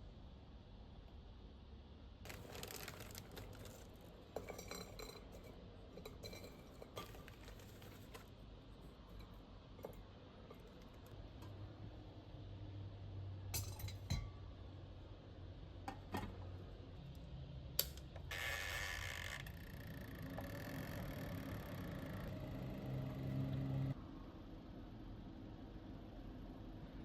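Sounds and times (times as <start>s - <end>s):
utensils and containers clinking: 2.3s - 8.3s
low steady hum: 20.3s - 27.0s.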